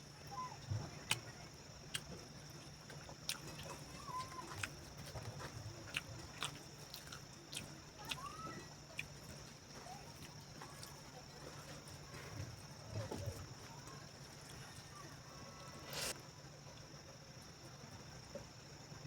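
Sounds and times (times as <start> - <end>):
chewing clicks and smacks: 1.0 - 11.0.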